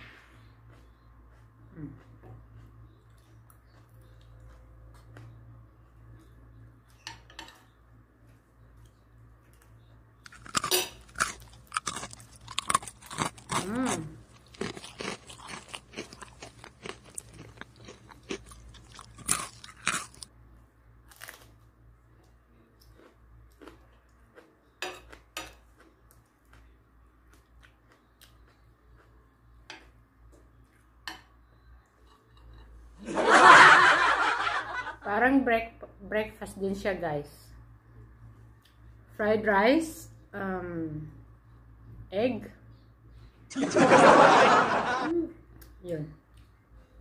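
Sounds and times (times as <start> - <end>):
chewing crisp food: 0.4 - 6.4, 8.5 - 20.3, 21.0 - 30.9.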